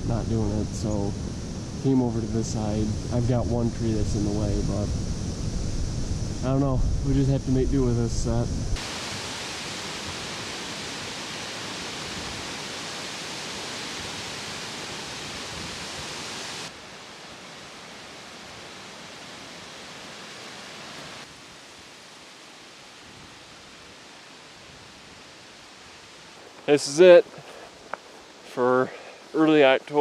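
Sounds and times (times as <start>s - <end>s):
outdoor ambient hiss: 0.0s - 30.0s.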